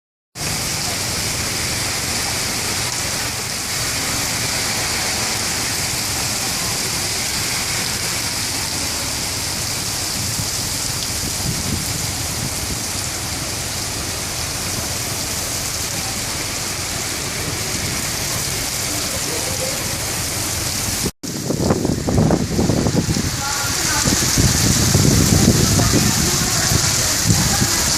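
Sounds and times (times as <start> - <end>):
heavy rain falling: 0.4 - 27.9.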